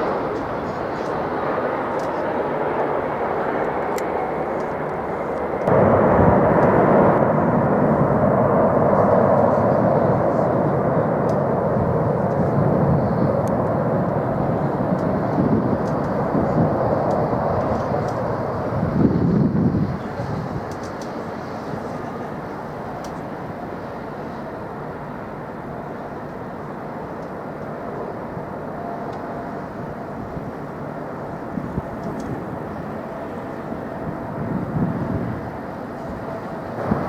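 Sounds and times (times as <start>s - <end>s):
jet engine rushing: 0.0s - 21.8s.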